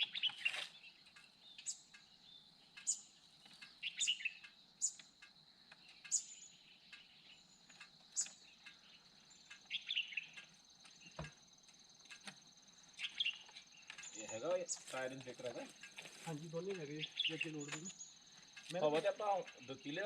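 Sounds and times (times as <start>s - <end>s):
steady insect drone: 0.0s - 20.0s
short high bird chirps: 3.8s - 5.0s, 9.7s - 10.3s.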